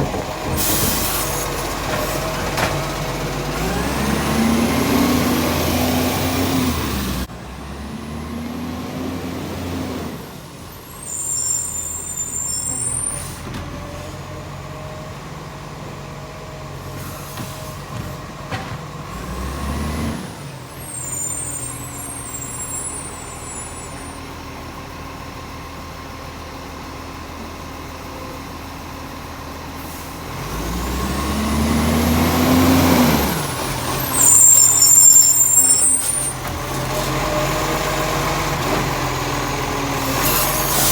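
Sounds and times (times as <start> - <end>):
diesel engine revving: 0.0 - 40.9
air brake hiss: 0.5 - 2.2.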